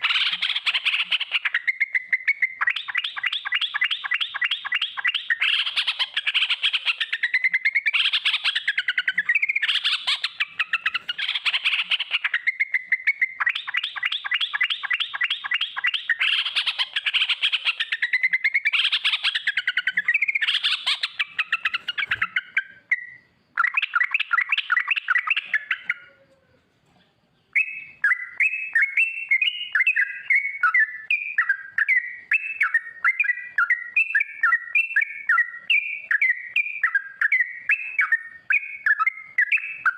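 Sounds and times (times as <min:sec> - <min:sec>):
bulbul singing rolling phrases: 0:00.0 - 0:26.6, 0:27.3 - 0:39.9.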